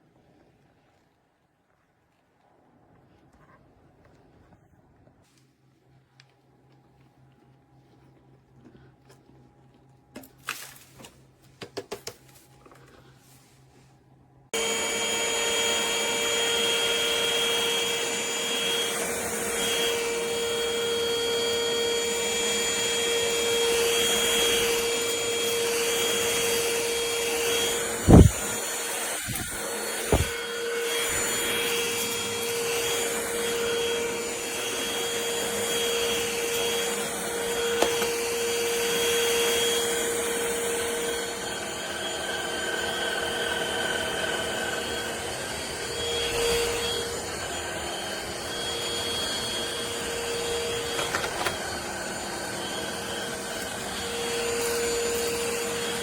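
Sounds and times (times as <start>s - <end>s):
stick vacuum motor whine: 14.5s - 56.0s.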